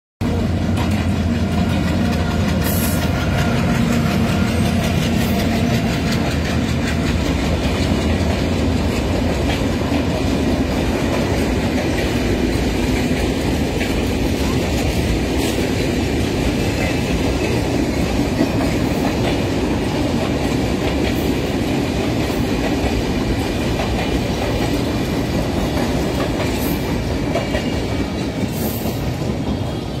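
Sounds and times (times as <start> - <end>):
train wheels rumbling on rails: 0.2 - 30.0.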